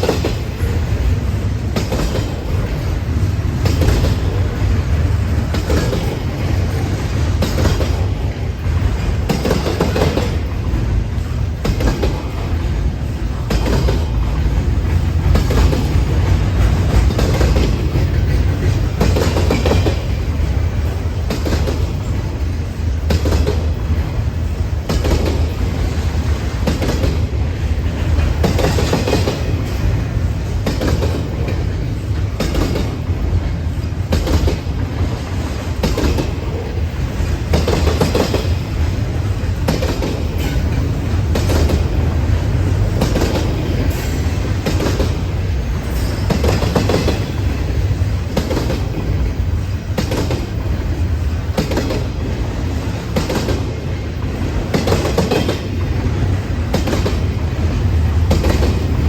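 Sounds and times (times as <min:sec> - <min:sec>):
train low rumble: 0:00.0 - 0:59.0
train wheels clacking: 0:00.0 - 0:59.0.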